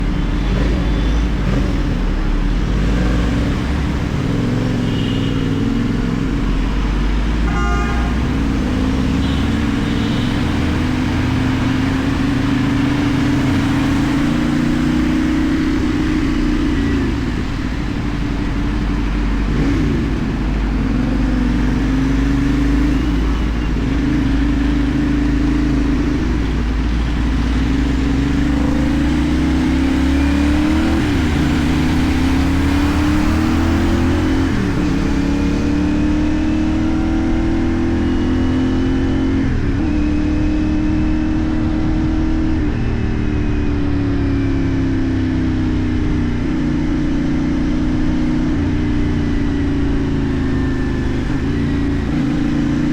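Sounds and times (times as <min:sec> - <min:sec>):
motorcycle engine running: 0:00.0 - 0:52.9
vehicle horn toot: 0:04.8 - 0:05.7, 0:07.4 - 0:10.8.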